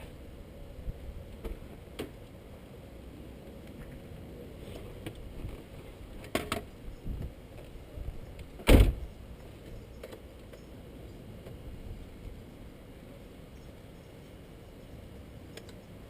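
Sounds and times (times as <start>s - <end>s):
short loud thump: 8.7s - 9.0s.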